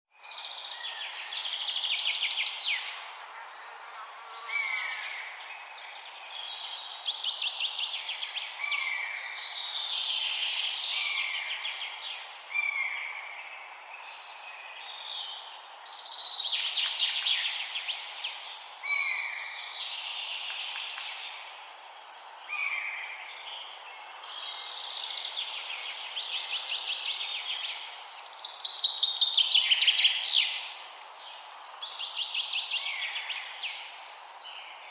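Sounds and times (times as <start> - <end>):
steady background hiss: 0.2 - 34.9.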